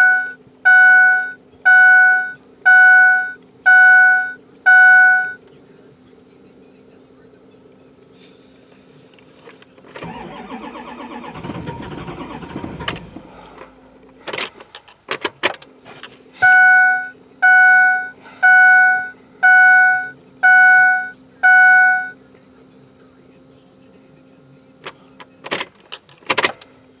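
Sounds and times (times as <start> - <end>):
dashboard warning chime: 0.0 - 5.5, 16.4 - 22.2.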